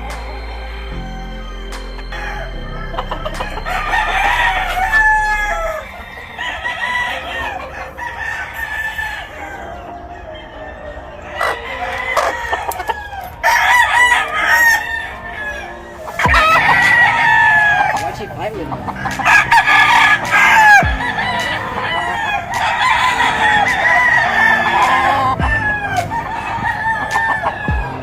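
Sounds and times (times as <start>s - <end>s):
roosters crowing: 0.0s - 28.0s.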